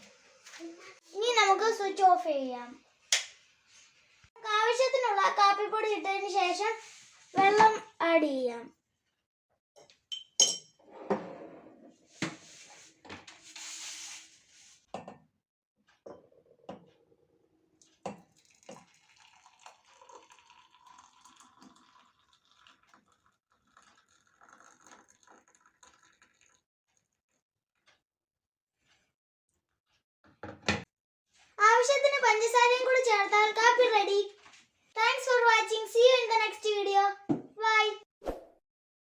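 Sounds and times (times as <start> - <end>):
spoon clinking against cup: 10.1 - 10.8
hot water pouring: 18.2 - 26.6.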